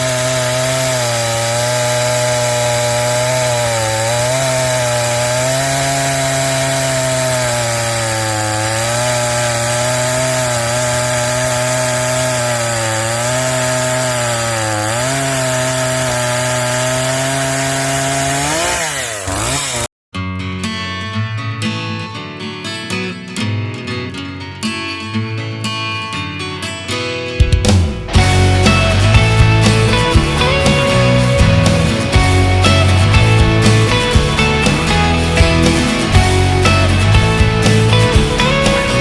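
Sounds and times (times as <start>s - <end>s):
chainsaw cutting: 0.0s - 19.9s, 28.1s - 39.0s.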